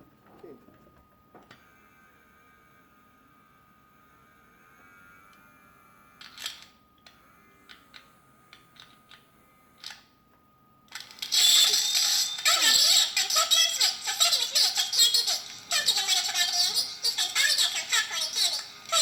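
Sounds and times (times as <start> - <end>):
scratchy garbled toy voice: 12.5 - 19.0.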